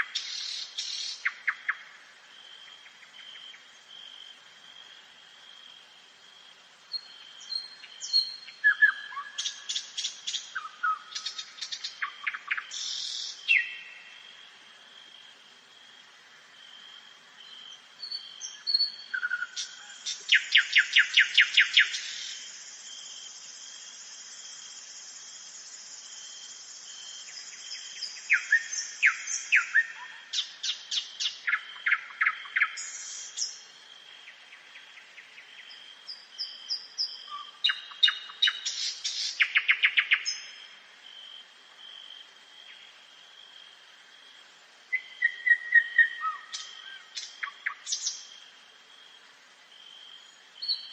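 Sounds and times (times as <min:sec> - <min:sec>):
nightingale singing: 0:00.0 - 0:01.9, 0:06.9 - 0:14.2, 0:17.4 - 0:40.8, 0:44.9 - 0:48.5, 0:49.9 - 0:50.9.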